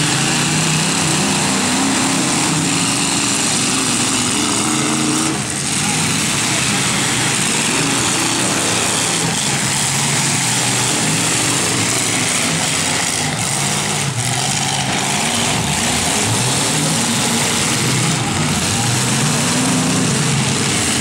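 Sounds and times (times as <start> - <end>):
truck engines revving: 0.0 - 21.0.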